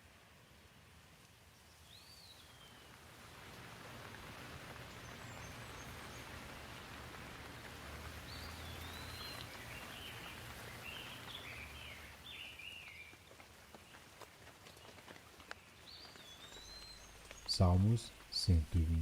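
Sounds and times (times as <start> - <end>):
light rain hissing: 0.0 - 19.0
bird chirping: 8.3 - 13.2, 15.5 - 18.8.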